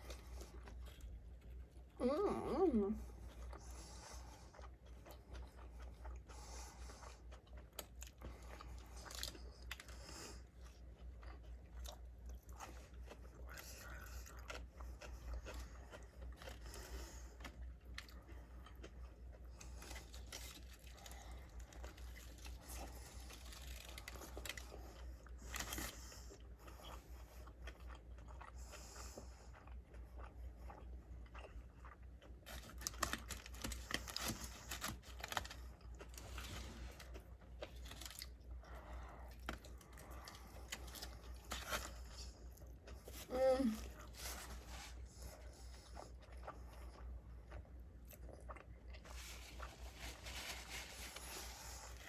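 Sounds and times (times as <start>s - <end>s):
chewing and biting burger: 0.0s - 2.0s, 3.0s - 52.0s
small crunches: 19.6s - 26.8s, 32.5s - 45.4s.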